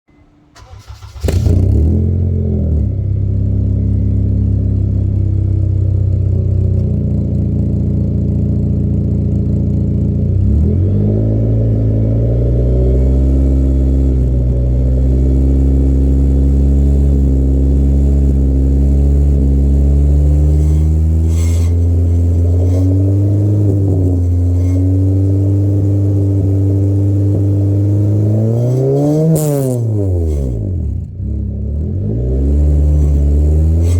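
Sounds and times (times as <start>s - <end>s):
engine blipped: 0.1s - 33.9s
engine starting up: 0.5s - 1.9s.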